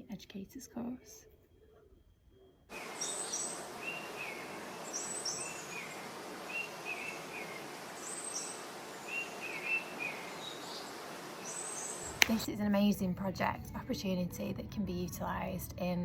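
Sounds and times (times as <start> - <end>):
birds chirping: 2.7 - 12.5
outdoor background hiss: 2.7 - 14.1.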